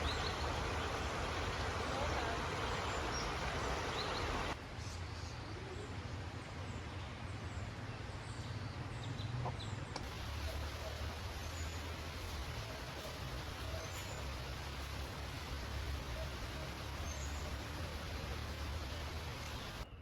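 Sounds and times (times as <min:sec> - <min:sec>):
birds chirping: 0:00.0 - 0:04.6, 0:09.6 - 0:20.0.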